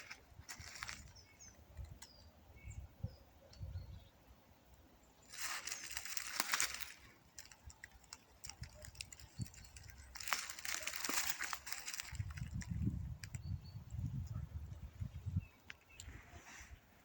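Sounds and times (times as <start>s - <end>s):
dry leaves rustling and crunching: 0.0s - 1.2s, 5.3s - 13.3s.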